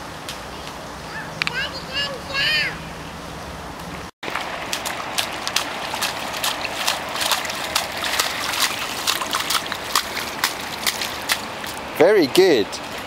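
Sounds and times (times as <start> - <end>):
steady rain: 0.0 - 13.0
sharp water spatters: 4.2 - 13.0.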